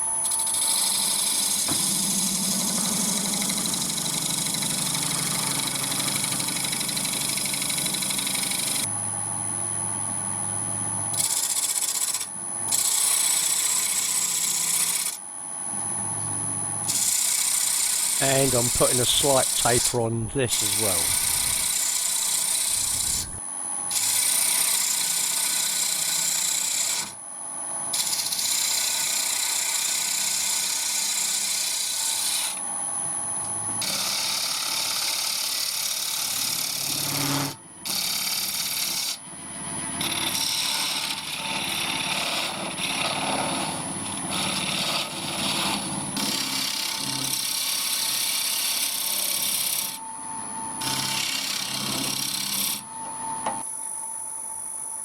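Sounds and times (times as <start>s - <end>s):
wood lathe tool scraping hiss: 0.0s - 1.7s, 11.1s - 15.2s, 16.9s - 27.2s, 27.9s - 32.6s, 33.8s - 39.2s, 40.0s - 50.0s, 50.8s - 53.4s.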